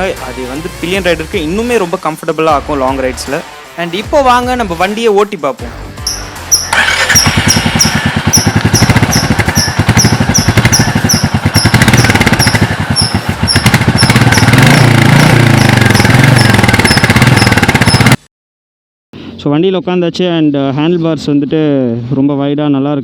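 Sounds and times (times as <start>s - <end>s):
high chirp: 6.0s - 18.2s
motorcycle engine running: 6.0s - 18.3s.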